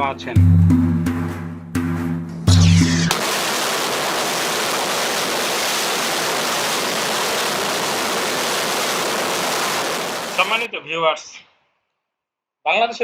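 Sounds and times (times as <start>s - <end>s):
rocket engine roaring: 2.5s - 10.7s.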